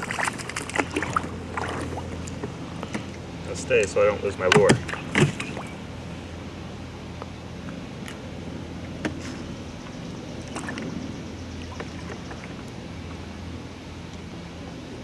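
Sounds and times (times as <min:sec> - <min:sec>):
small boat hum and hiss: 0:00.0 - 0:15.0.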